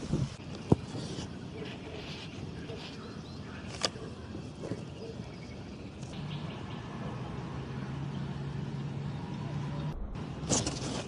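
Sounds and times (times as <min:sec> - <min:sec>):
outdoor background noise: 0:00.0 - 0:11.0
low engine hum: 0:06.1 - 0:11.0.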